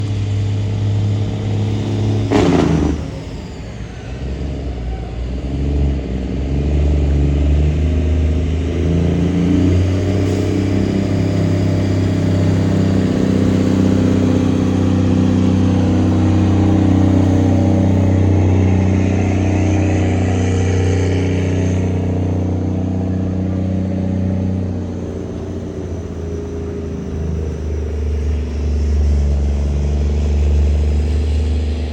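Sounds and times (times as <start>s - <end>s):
diesel truck engine under load: 0.0s - 31.9s
short loud burst: 2.2s - 4.8s.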